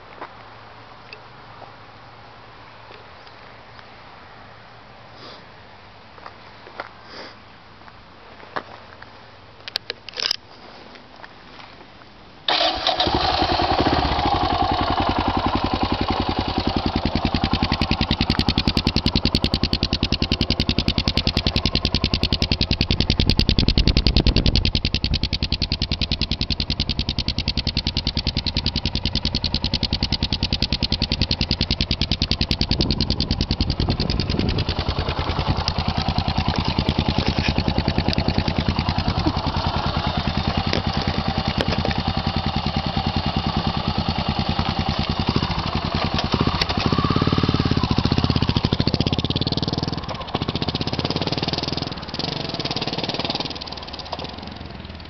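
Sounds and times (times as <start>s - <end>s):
motorcycle engine starting and idling: 12.4s - 55.0s.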